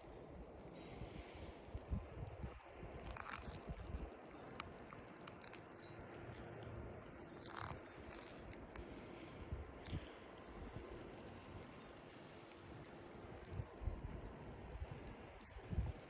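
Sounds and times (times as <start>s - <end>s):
wind rumble on microphone: 0.0s - 5.0s, 13.0s - 16.0s.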